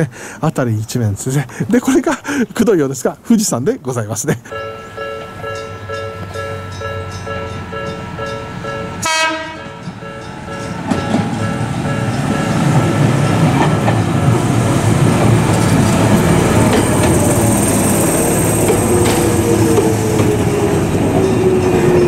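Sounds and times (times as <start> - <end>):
level crossing bell ringing: 4.5 - 9.0, 9.8 - 13.0
train wheel and motor rumble: 4.6 - 22.0
train horn blast: 7.8 - 10.7.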